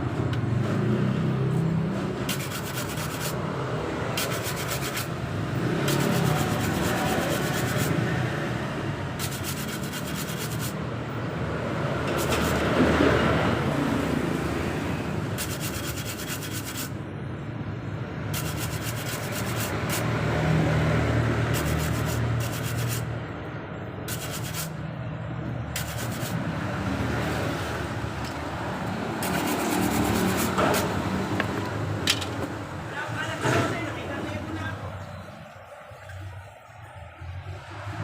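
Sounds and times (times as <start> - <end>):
abrasive scrubbing on metal: 2.2 - 8.1, 9.1 - 10.8, 12.0 - 12.8, 15.3 - 17.0, 18.3 - 20.1, 21.5 - 23.1, 24.0 - 24.8, 25.8 - 26.5, 29.1 - 31.4.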